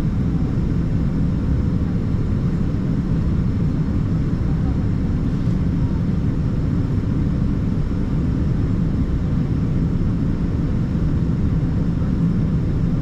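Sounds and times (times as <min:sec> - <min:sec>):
aircraft cabin rumble and hiss: 0:00.0 - 0:13.0.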